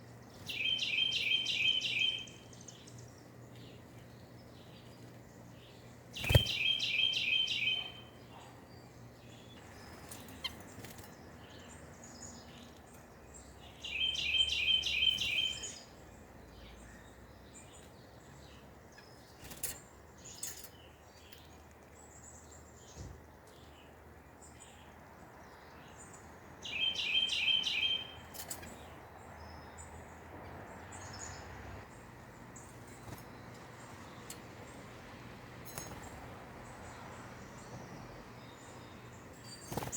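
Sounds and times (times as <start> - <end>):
nuthatch singing nasal notes: 6.2 - 8.1.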